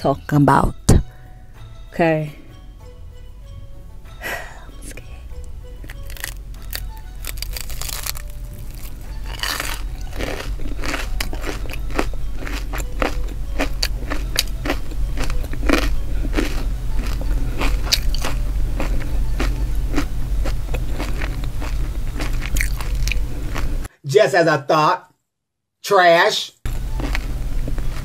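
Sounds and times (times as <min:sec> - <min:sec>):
low hum: 0:00.0 - 0:23.9, 0:26.7 - 0:28.0
crunchy chewing: 0:05.8 - 0:23.9, 0:26.7 - 0:28.0.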